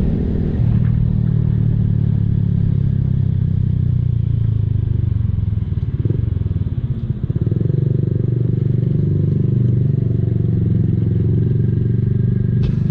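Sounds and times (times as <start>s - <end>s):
motorcycle exhaust pulsing: 0.0s - 12.9s.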